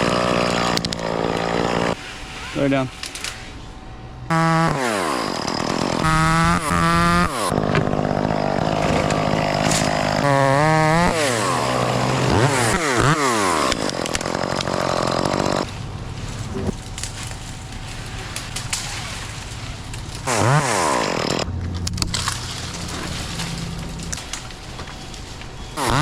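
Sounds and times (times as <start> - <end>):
chainsaw revving: 0.0 - 2.5, 4.3 - 15.7, 20.2 - 21.5, 25.8 - 26.0.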